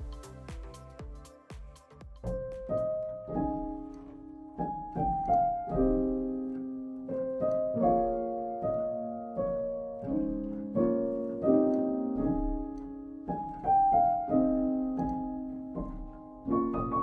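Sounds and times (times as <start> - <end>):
ringing piano chords: 2.2 - 17.0.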